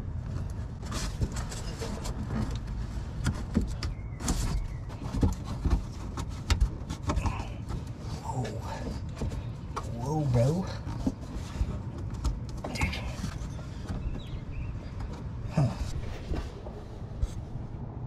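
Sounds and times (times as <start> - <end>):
low rumble: 14.5 - 18.0.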